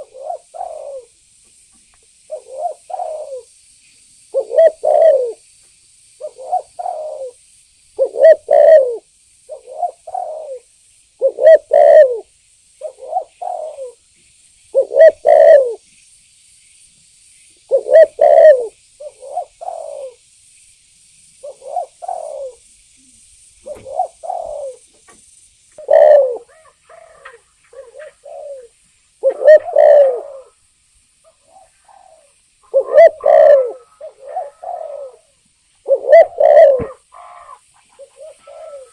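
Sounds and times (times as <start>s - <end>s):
dove cooing: 0.0s - 1.2s, 2.3s - 3.5s, 4.3s - 5.4s, 6.2s - 7.4s, 8.0s - 14.0s, 14.8s - 15.8s, 17.7s - 20.2s, 21.4s - 24.9s, 25.8s - 30.6s, 31.2s - 38.9s.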